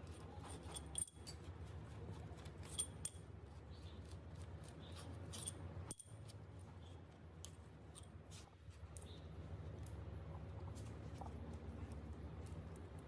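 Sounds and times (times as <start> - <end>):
low steady hum: 0.0 - 13.0
metal tools clinking: 0.4 - 1.5.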